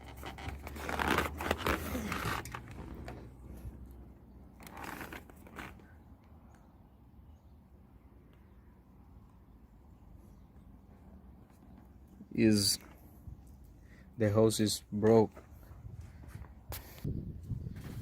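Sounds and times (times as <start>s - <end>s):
rustling and scraping handling: 0.0s - 6.1s.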